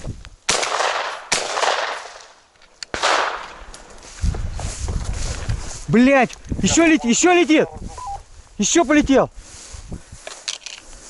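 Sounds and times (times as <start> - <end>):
shotgun shots echoing: 0.5 - 2.3, 2.9 - 3.6.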